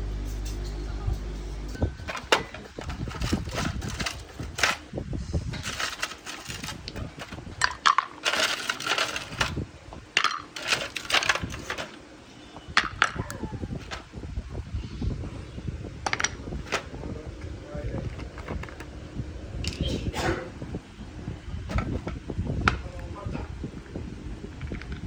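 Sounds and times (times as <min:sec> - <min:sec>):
objects clinking and clattering: 0:01.8 - 0:04.9, 0:05.5 - 0:09.6, 0:10.2 - 0:12.0, 0:12.8 - 0:14.1, 0:16.0 - 0:16.9
rustling: 0:01.9 - 0:04.9, 0:05.5 - 0:07.5, 0:08.2 - 0:09.6, 0:10.5 - 0:12.0.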